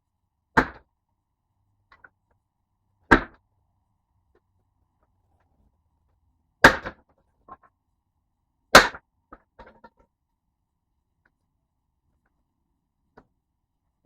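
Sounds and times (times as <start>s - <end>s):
axe splitting wood: 0.6s - 0.9s, 3.1s - 3.4s, 6.6s - 7.1s, 8.7s - 9.0s.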